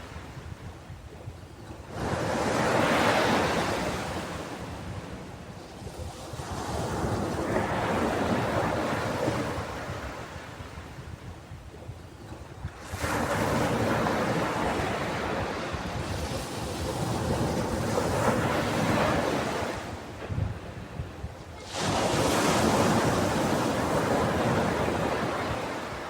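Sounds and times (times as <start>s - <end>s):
waves breaking on a beach: 0.0s - 26.0s.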